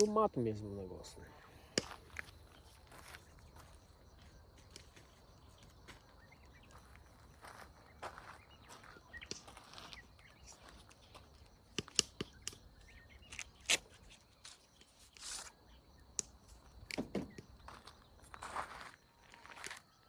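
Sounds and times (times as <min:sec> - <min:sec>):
footsteps through dry brush: 0:01.3 - 0:11.6, 0:17.4 - 0:20.0.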